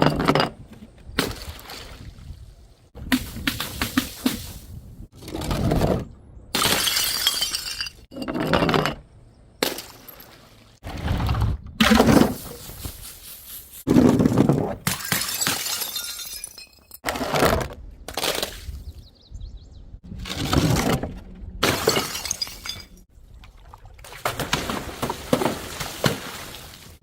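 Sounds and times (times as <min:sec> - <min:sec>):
glass bottles smashing: 0:06.6 - 0:08.8, 0:14.8 - 0:17.0, 0:21.6 - 0:23.1
glass shards clinking: 0:21.9 - 0:23.0.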